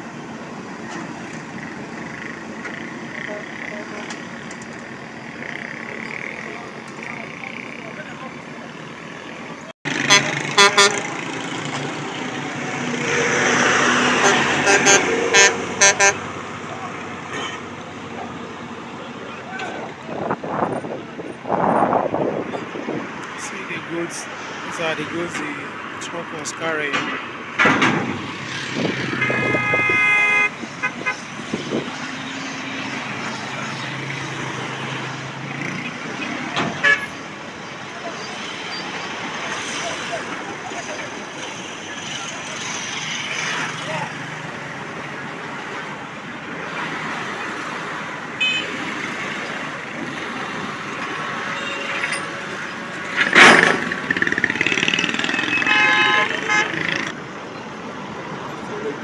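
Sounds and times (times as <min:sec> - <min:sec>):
roadway traffic noise: 0:00.0 - 0:59.0
vehicle passing close: 0:09.9 - 0:16.8, 0:20.1 - 0:36.8
vehicle horn blaring: 0:10.0 - 0:11.1, 0:14.2 - 0:16.2, 0:17.3 - 0:17.7, 0:29.1 - 0:31.2, 0:48.4 - 0:48.7, 0:55.3 - 0:56.8.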